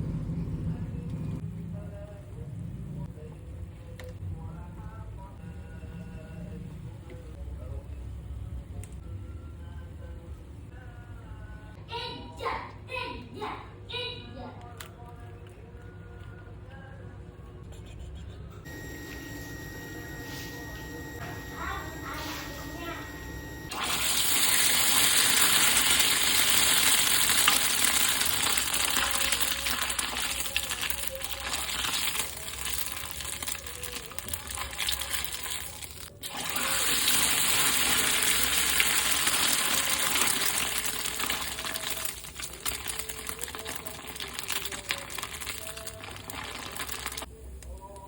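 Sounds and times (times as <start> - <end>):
food sizzling in hot oil: 23.7 - 47.3.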